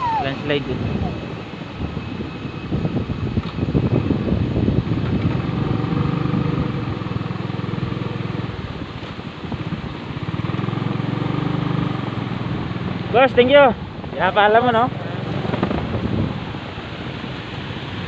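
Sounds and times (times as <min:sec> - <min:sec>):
motorcycle engine running: 0:03.9 - 0:16.4.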